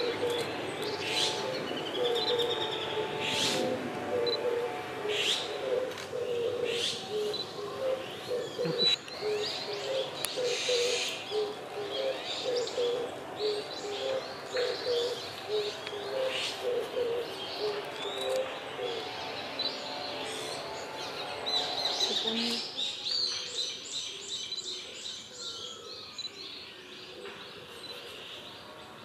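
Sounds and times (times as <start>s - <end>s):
bird low cooing: 0.0s - 19.4s.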